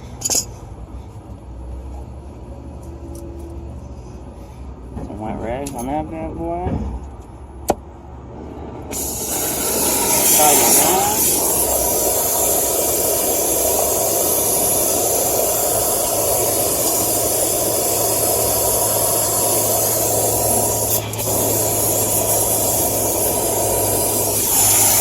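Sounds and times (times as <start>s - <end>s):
gas torch flame hissing: 8.9s - 25.0s.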